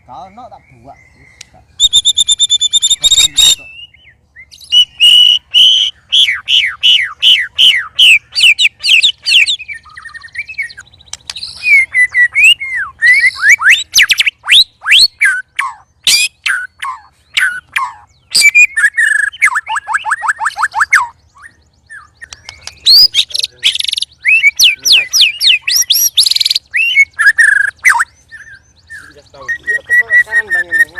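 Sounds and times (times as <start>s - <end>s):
bird song whistled notes: 0.0s - 30.9s
buzzy bird song passage: 0.0s - 30.9s
rapid bird trill: 0.0s - 30.9s.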